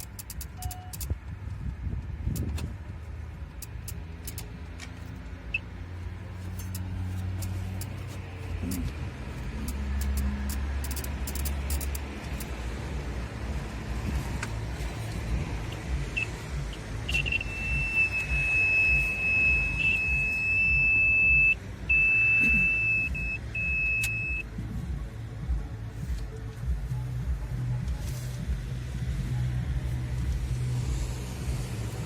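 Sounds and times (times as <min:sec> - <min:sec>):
high-pitched electronic beep: 0:00.0 - 0:01.1, 0:16.1 - 0:24.5.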